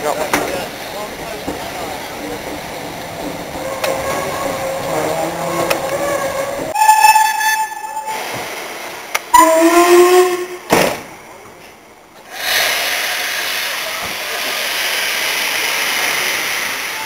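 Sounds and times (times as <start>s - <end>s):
steam locomotive whistle: 6.7s - 8.4s, 9.3s - 10.6s.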